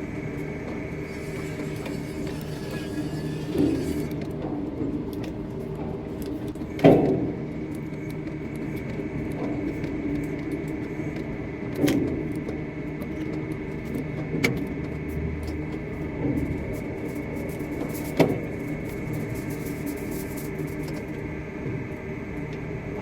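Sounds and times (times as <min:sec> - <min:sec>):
thin high whine: 0:00.0 - 0:04.2
construction machinery humming: 0:00.0 - 0:04.7.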